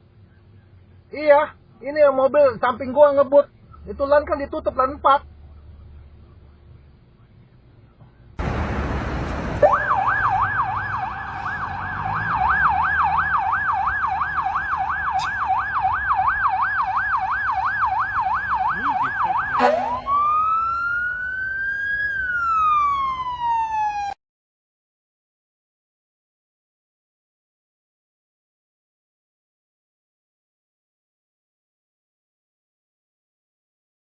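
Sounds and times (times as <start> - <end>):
emergency siren yelp and wail: 8.4 - 24.2.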